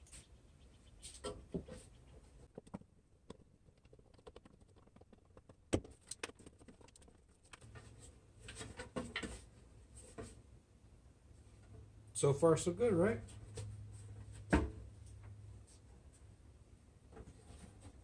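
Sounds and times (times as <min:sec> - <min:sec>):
wooden parts clicking and tapping: 0:01.1 - 0:07.9.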